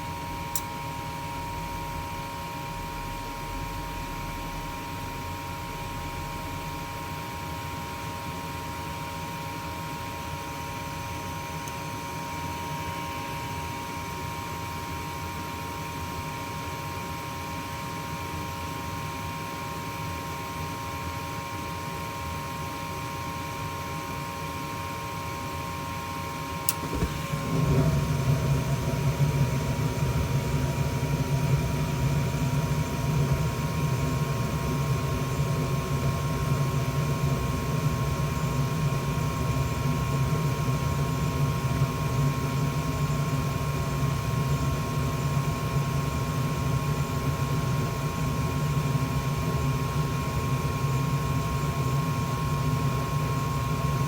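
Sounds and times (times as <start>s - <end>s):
furnace low rumble: 0.0s - 7.2s, 26.7s - 54.0s
gas furnace humming: 0.0s - 16.2s, 26.4s - 54.0s
furnace click: 26.7s - 27.8s.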